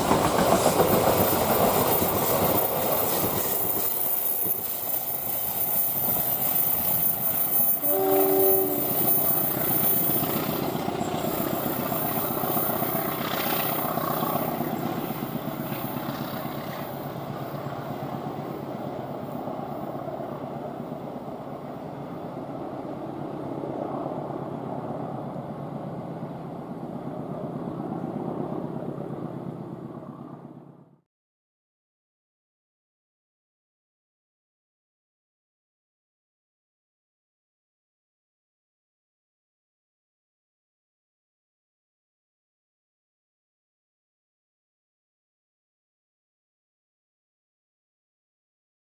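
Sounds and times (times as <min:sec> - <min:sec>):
train rumbling past: 0:00.0 - 0:31.0.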